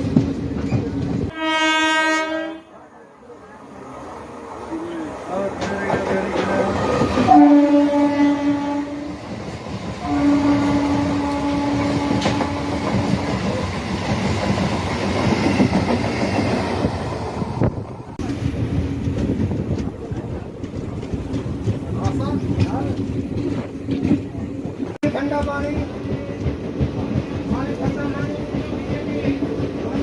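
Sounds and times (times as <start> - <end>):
train wheels rumbling and clattering: 0.0 - 1.4, 4.1 - 30.0
locomotive horn blasts: 1.3 - 2.7, 7.3 - 9.2, 10.0 - 13.1.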